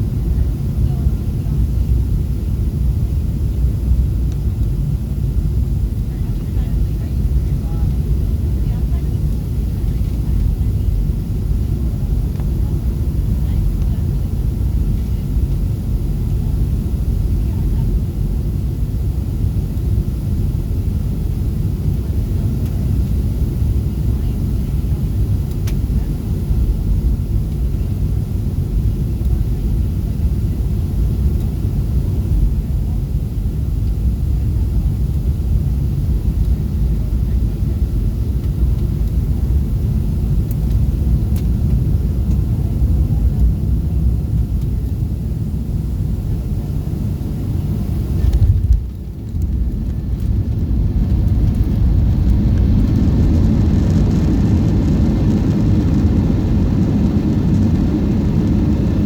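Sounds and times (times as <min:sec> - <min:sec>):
jet engine cabin rumble: 0:00.0 - 0:59.0.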